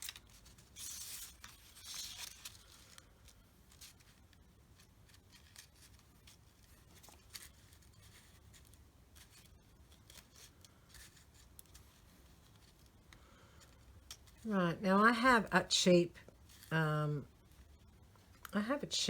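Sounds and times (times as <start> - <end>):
paper rustling and clicking: 0.0 - 14.4.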